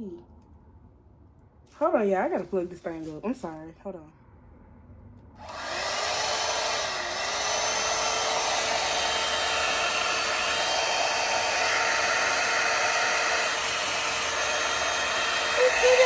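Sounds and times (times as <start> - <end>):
hot air brush fan blowing: 5.4 - 16.0.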